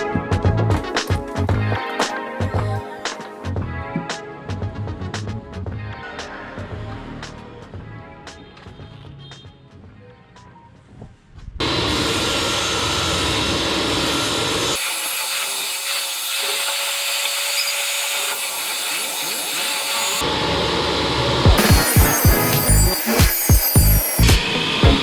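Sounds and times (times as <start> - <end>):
power tool on wood: 11.6 - 25.0.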